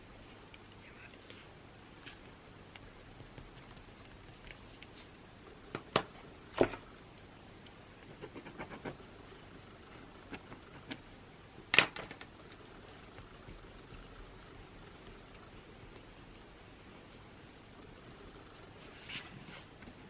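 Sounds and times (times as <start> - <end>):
pen and pencil clicks and taps: 2.0 - 5.0, 10.2 - 11.1.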